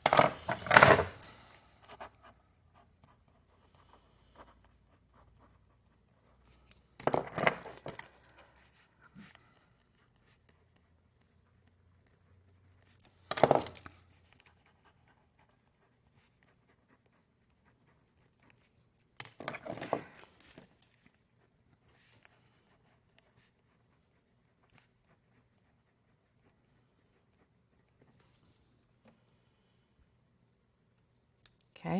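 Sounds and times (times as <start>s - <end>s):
pen taps and scratches: 0.0s - 1.3s, 6.3s - 9.3s, 10.2s - 16.9s, 17.9s - 21.2s.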